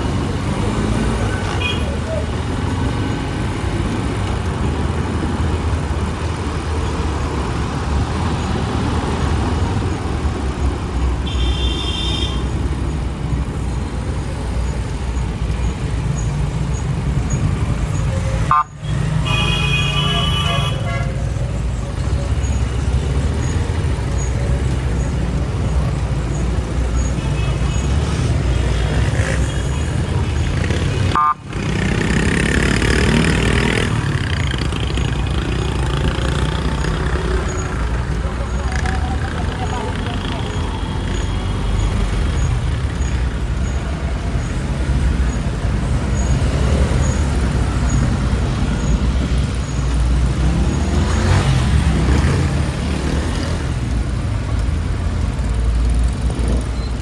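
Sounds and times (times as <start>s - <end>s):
road noise: 0.0s - 57.0s
vehicle horns tooting: 11.2s - 12.5s, 18.1s - 21.4s, 31.1s - 31.4s.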